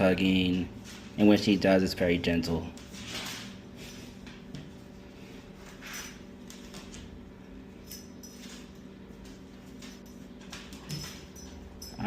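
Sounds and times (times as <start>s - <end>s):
steady low hum: 0.0s - 12.0s
light clicks and clinks: 7.8s - 12.0s.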